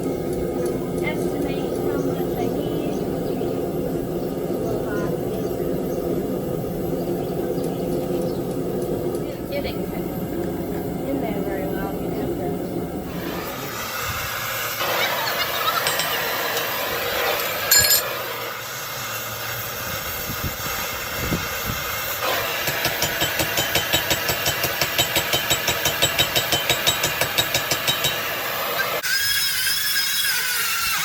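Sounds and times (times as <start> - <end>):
forge burner hissing: 0.0 - 31.0
ringing metal clink: 17.7 - 18.1.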